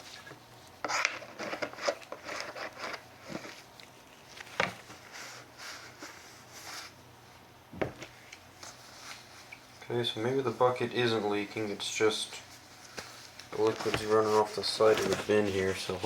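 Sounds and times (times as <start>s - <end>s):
hands rustling on plastic bin: 12.5s - 16.0s.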